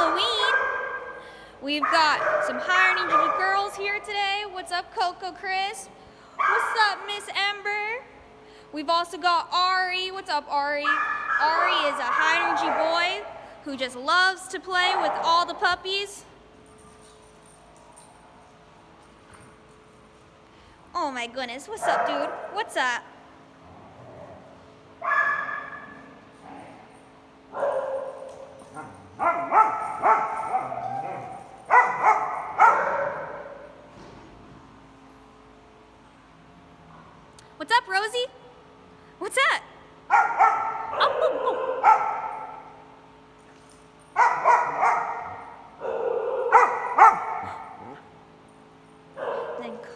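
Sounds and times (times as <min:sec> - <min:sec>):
dog barking: 0:00.4 - 0:01.2, 0:06.4 - 0:06.8, 0:25.0 - 0:25.9, 0:29.2 - 0:33.7, 0:40.1 - 0:42.6, 0:44.2 - 0:48.0, 0:49.2 - 0:49.8.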